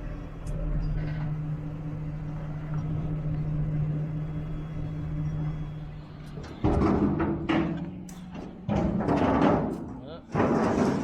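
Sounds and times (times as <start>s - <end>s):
truck engine hum: 0.0s - 8.8s
road rumble: 0.0s - 11.0s.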